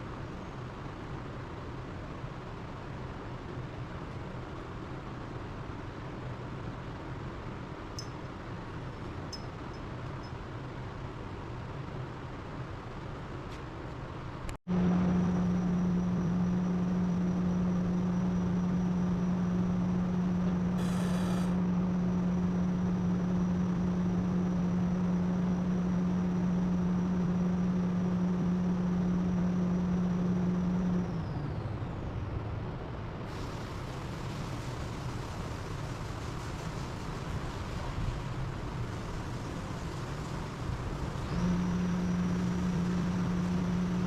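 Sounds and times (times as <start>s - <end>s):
motor-driven machine humming: 14.7s - 21.6s.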